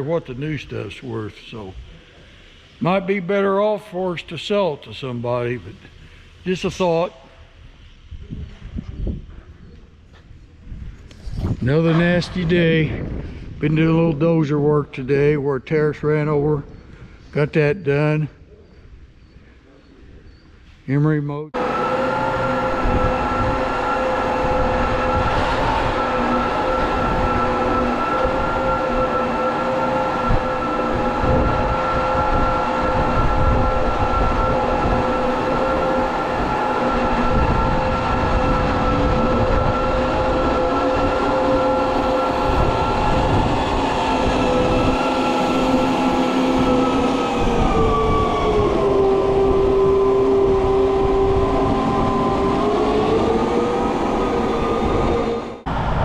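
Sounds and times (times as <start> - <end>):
heavy diesel machine running: 21.6 - 56.0
whining tone: 21.6 - 56.0.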